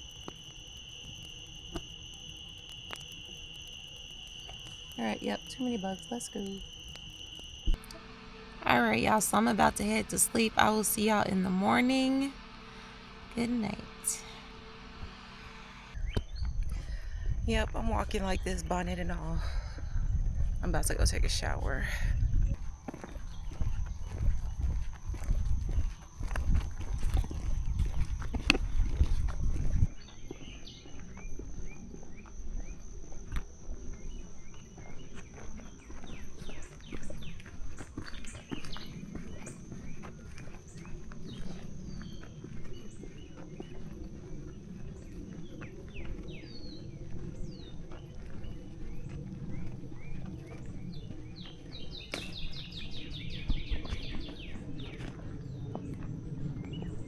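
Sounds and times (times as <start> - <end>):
songbird singing: 0.0 - 15.4, 29.9 - 32.8, 33.9 - 55.9, 56.5 - 57.0
high-pitched insect drone: 0.0 - 57.0
low background rumble: 0.0 - 57.0
low scuffing footsteps: 22.4 - 57.0.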